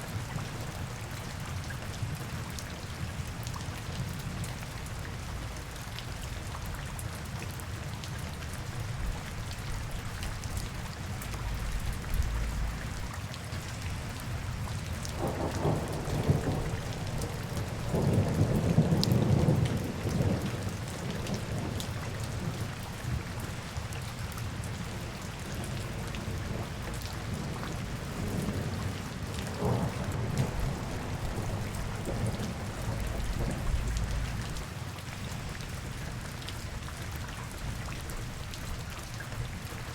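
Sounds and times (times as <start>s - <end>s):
steady rain falling: 0.0s - 39.9s
low rumble: 33.0s - 34.6s.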